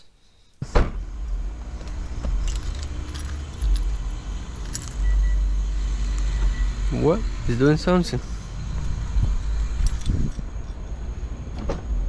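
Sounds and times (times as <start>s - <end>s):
keys jingling: 1.2s - 5.3s, 9.6s - 11.2s.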